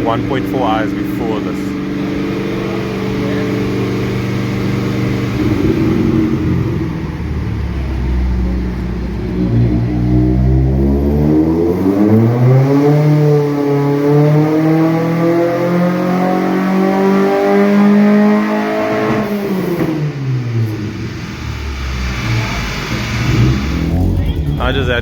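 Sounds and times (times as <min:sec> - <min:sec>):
car engine revving at high revs: 0:00.0 - 0:25.0.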